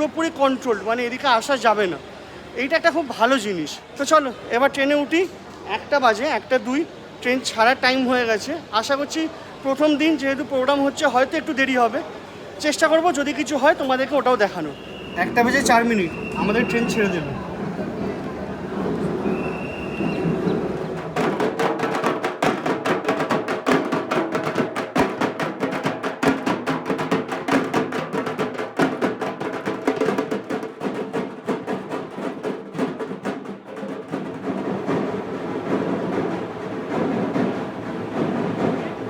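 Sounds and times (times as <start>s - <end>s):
fast drumming: 19.3s - 39.0s.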